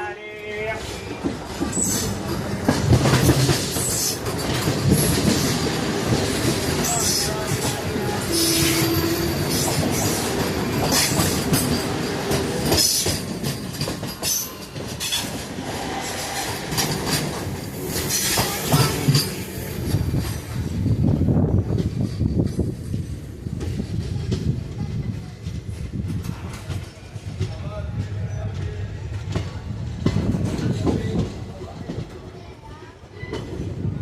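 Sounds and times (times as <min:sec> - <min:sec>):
train wheels clattering over joints: 0:01.1 - 0:32.4
high wheel squeals: 0:08.2 - 0:10.2.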